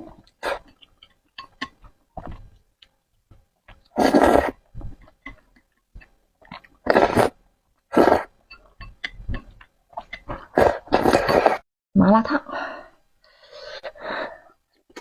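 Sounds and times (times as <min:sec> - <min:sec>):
wet chewing: 0:03.6 - 0:07.4
loud noodle slurps: 0:03.9 - 0:04.6, 0:06.8 - 0:08.3, 0:10.4 - 0:11.6.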